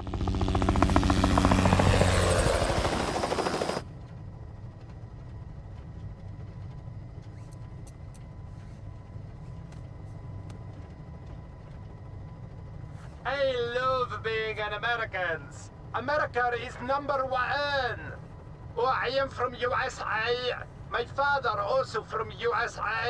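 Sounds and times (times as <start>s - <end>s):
low engine drone: 0.0s - 3.7s
helicopter rotor chopping: 0.0s - 3.9s.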